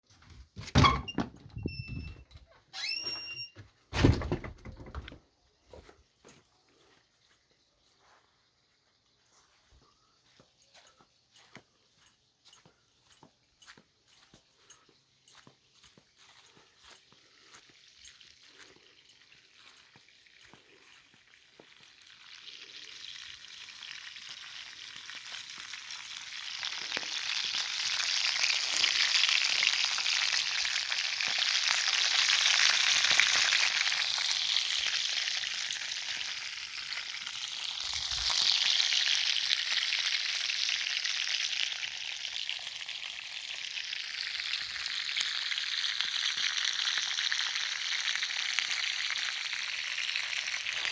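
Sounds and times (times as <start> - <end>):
campfire hissing crackle: 19.0 - 50.9.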